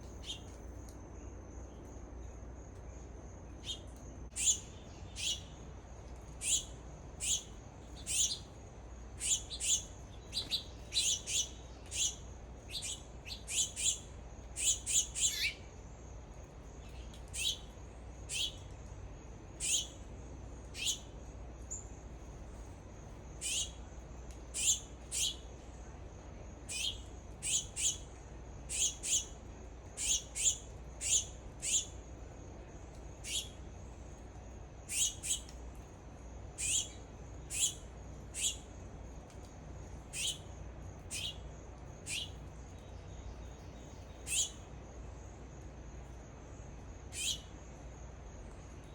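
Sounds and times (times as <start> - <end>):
birds chip calls: 3.6 - 5.5, 6.3 - 8.5, 9.1 - 15.6, 16.9 - 17.7, 18.3 - 18.7, 19.6 - 20.0, 20.7 - 21.1, 23.3 - 23.8, 24.5 - 25.5, 26.7 - 32.0, 33.1 - 33.6, 34.9 - 35.6, 36.6 - 38.7, 40.1 - 40.4, 41.0 - 41.4, 42.0 - 44.6, 47.1 - 47.5.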